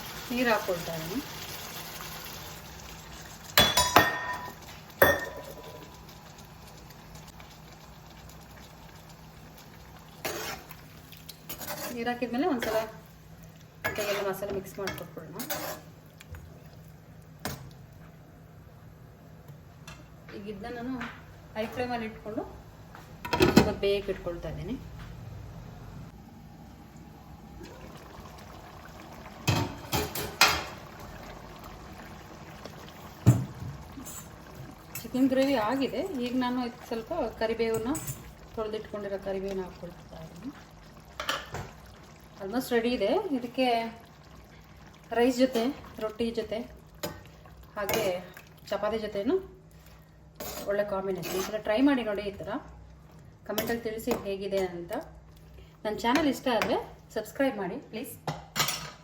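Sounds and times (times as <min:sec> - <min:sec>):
gravy bubbling in a pan: 0:00.0 - 0:17.9, 0:27.3 - 0:55.9
metal cookware clinking: 0:03.6 - 0:05.9, 0:58.3 - 0:59.0.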